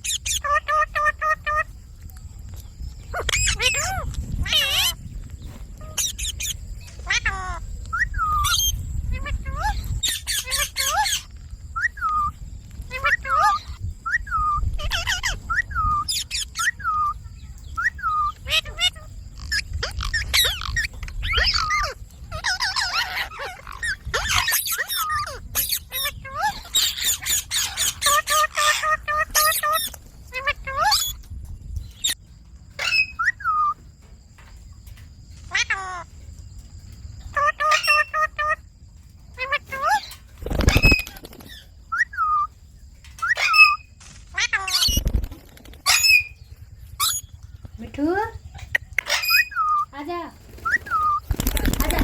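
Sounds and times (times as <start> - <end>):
parakeet squawking: 0.0 - 1.7, 3.1 - 5.0, 5.8 - 12.3, 12.9 - 17.2, 17.8 - 31.2, 32.8 - 33.8, 37.3 - 38.6, 43.1 - 45.0, 45.9 - 47.4, 48.5 - 52.0
low rumble: 43.8 - 49.8.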